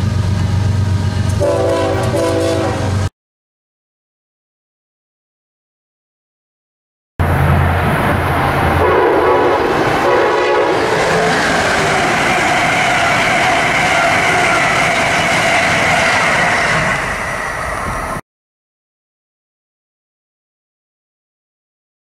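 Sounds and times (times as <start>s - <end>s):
passenger train passing: 0.0s - 3.1s, 7.2s - 18.2s.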